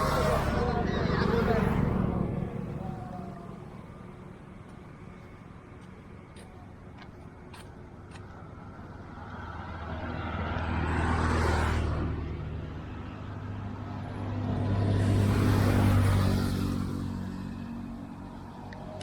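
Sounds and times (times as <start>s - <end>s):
motor vehicles passing by: 0.0s - 19.0s.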